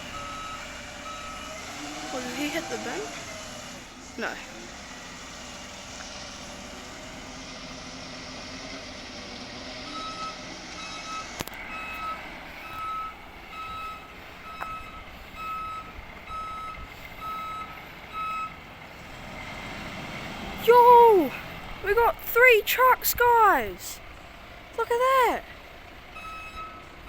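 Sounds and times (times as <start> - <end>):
reversing alarm beeping: 0.0 - 2.9, 9.9 - 18.6, 26.2 - 26.9
truck engine running: 0.0 - 27.0.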